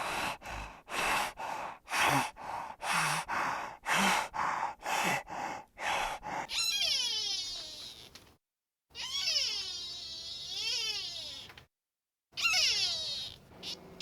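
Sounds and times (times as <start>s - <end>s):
animal breathing hard: 0.0s - 6.6s
animal high wavering call: 12.4s - 13.9s.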